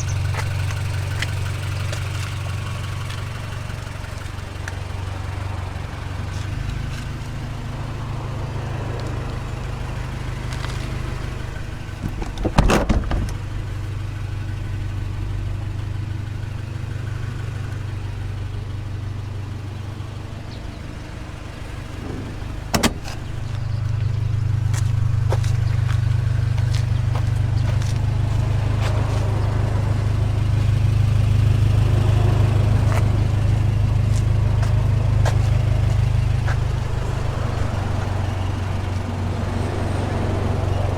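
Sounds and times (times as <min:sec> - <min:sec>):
car engine and road drone: 0:00.0 - 0:40.9
loud clatter: 0:11.9 - 0:13.8.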